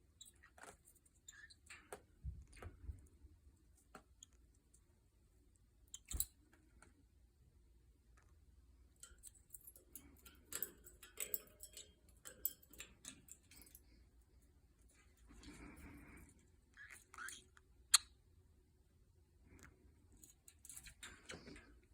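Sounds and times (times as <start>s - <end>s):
faint clicking and taps: 0.2s - 4.9s.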